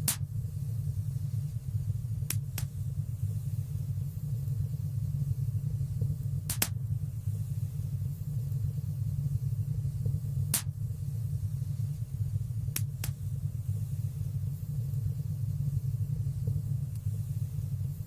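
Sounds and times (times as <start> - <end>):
fire crackling pops: 0.0 - 0.4, 2.1 - 3.0, 6.1 - 7.0, 10.0 - 11.0, 12.6 - 13.5
fire rumbling in fireplace: 0.0 - 18.0.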